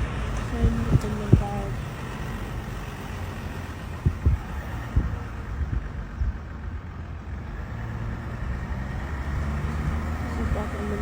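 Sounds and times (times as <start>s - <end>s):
dull low thumps: 0.0s - 2.0s, 3.9s - 6.6s
car driving low rumble: 0.0s - 11.0s.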